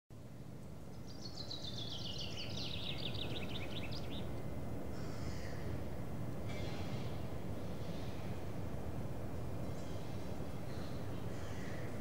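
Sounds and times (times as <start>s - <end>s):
songbird chirping: 0.6s - 4.5s.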